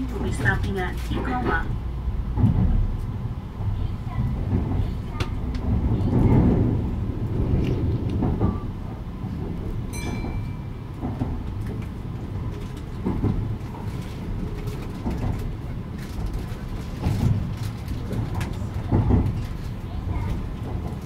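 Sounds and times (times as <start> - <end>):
train rumbling inside: 0.0 - 21.0
wheels clicking over rails: 4.1 - 21.0.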